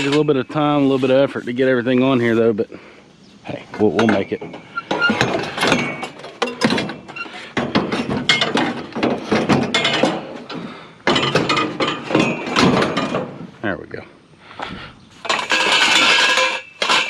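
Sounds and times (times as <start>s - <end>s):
metal scrap clanking and rattling: 0.0s - 1.0s, 3.8s - 13.5s, 15.2s - 17.0s.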